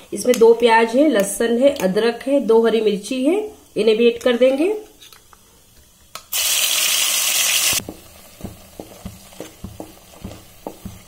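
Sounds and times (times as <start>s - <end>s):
paste sizzling in hot oil: 6.3s - 11.0s
wooden spatula scraping a pan: 7.8s - 11.0s.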